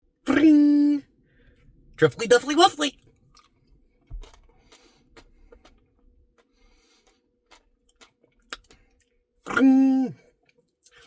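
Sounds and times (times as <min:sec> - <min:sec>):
mouth clicks and smacks eating: 0:04.2 - 0:09.7.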